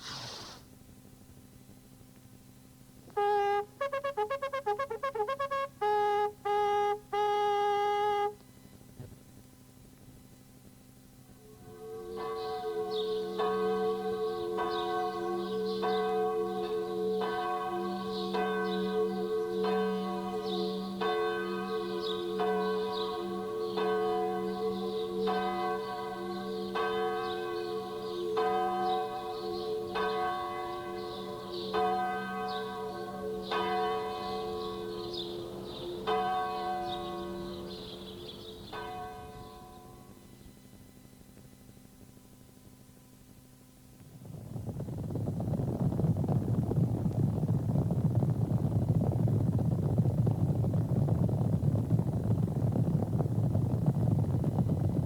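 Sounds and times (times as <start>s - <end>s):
church bells ringing: 11.9s - 40.2s.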